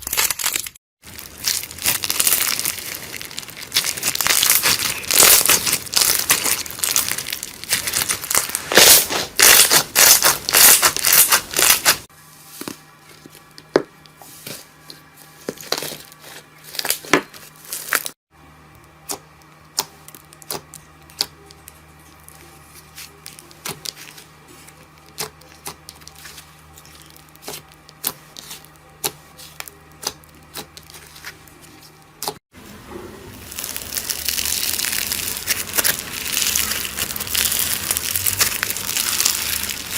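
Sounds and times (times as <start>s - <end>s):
slime crackling and popping: 0.0s - 12.0s, 33.4s - 39.9s.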